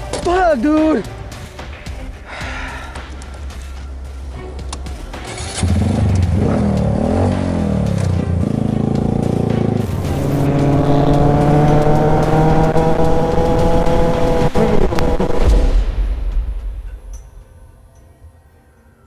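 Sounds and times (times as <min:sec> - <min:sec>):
motorcycle engine revving: 0:04.7 - 0:15.8.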